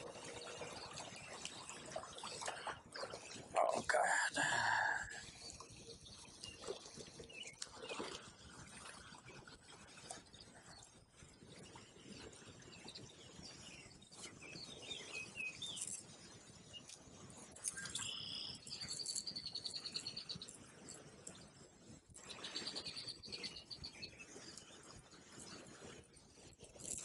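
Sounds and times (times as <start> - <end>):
songbird chirps: 0.0 - 21.6, 22.2 - 26.4.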